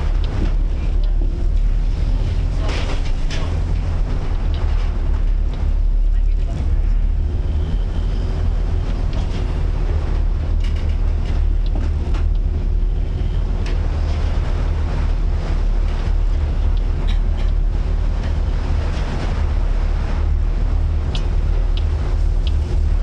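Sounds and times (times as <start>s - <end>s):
steady low drone: 0.0s - 23.0s
wash of waves: 0.0s - 23.0s
wind blowing across microphone: 0.0s - 23.0s.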